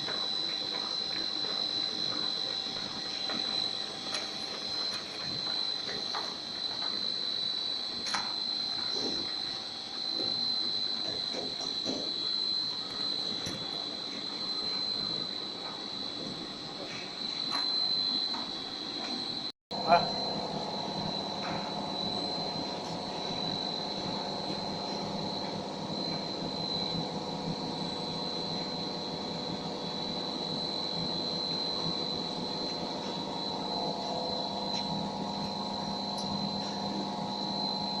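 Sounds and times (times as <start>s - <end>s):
constant high whine: 0.0s - 38.0s
machine drone: 19.7s - 38.0s.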